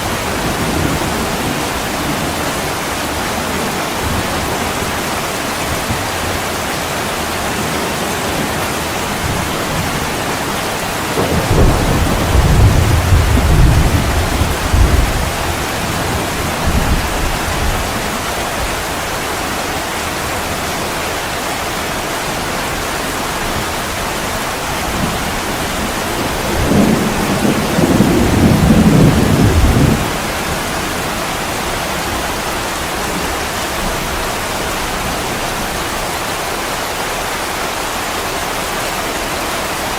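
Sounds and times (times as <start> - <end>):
heavy rain on a window: 0.0 - 39.9
low rolls of thunder: 7.6 - 18.1, 24.8 - 31.2.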